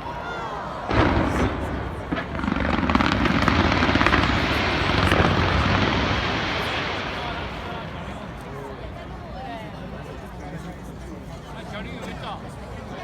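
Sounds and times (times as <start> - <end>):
fireworks crackling: 0.8 - 10.3
low rumble: 0.9 - 9.3.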